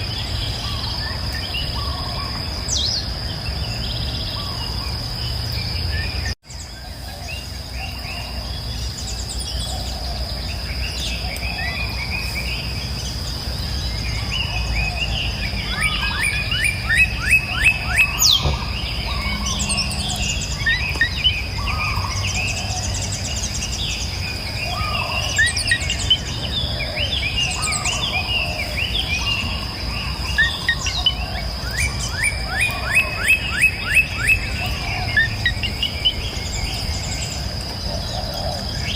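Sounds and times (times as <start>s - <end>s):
high insect drone: 0.0s - 38.9s
songbirds singing and chirping: 0.0s - 38.9s.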